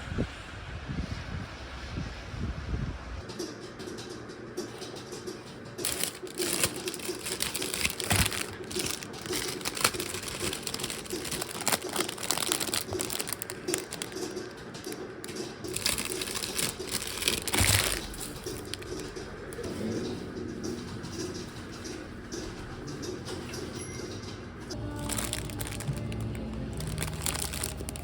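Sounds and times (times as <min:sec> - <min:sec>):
packaging rustling and crinkling: 0:05.8 - 0:19.2, 0:24.7 - 0:28.0.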